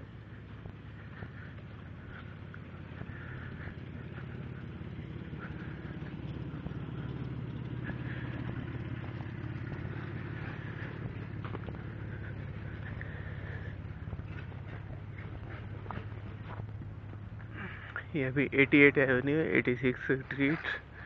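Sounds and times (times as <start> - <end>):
engine running at low speed: 0.0 - 21.0.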